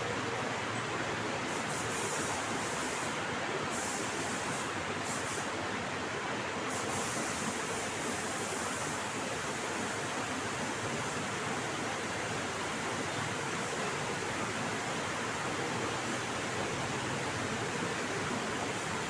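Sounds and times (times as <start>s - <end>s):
paint spray gun hissing: 1.5s - 3.1s, 3.7s - 5.5s, 6.7s - 9.6s.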